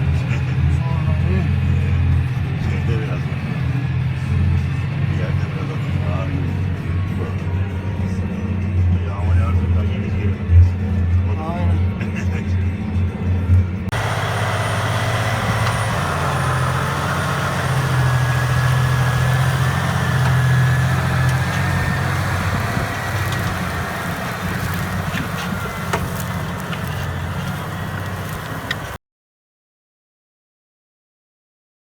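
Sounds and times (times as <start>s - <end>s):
tractor diesel engine running: 13.9s - 29.0s.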